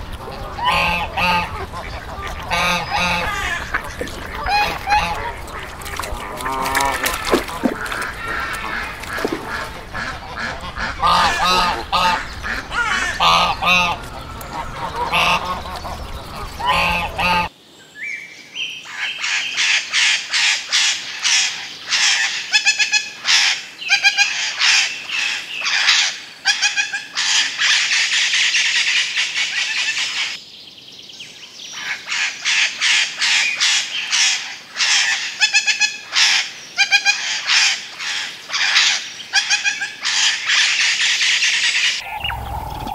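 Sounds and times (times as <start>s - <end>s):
flock of birds calling: 0.0s - 17.5s, 31.8s - 42.9s
waterfowl honking: 0.0s - 17.5s, 32.5s - 42.9s.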